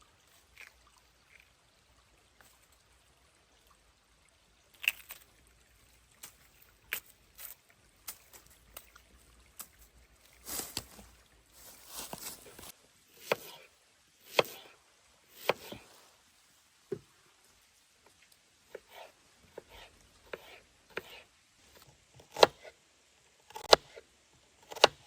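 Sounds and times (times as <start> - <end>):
rustling: 9.6 - 12.7.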